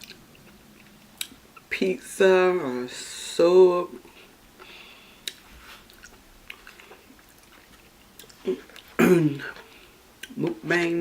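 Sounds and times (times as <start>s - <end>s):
chewing noodles: 4.6s - 10.6s
wet mouth clicks and smacks: 5.2s - 9.0s
person speaking: 8.4s - 11.0s.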